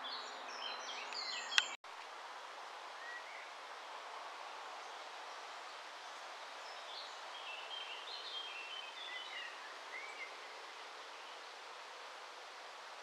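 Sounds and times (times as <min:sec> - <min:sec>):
bird chirping: 0:00.0 - 0:01.8
steady outdoor hiss: 0:00.0 - 0:13.0.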